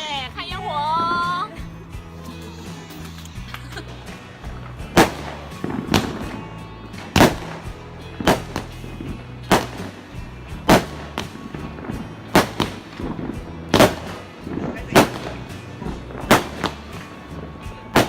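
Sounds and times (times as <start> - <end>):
background music: 0.0 - 18.0
fireworks bangs: 3.8 - 18.0.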